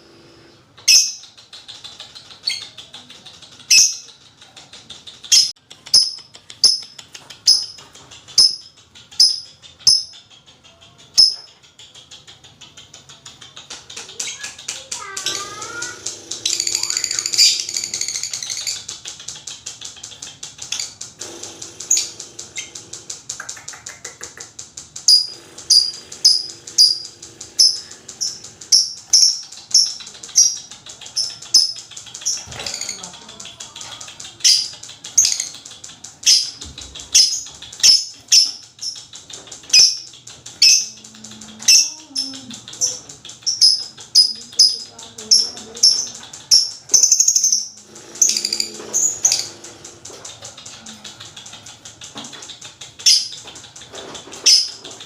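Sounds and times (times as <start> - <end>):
bird chattering trill: 0.3 - 55.0.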